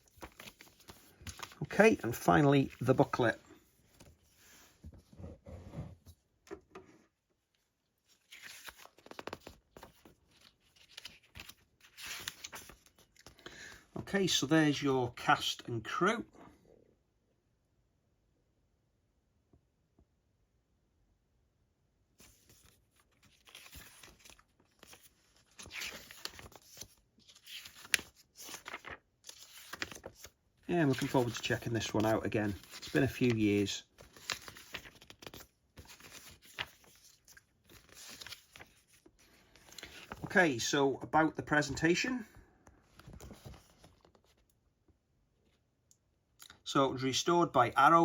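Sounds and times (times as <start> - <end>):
paper pages rustling: 0.0 - 5.3, 8.1 - 13.4, 22.2 - 40.7, 42.7 - 44.6.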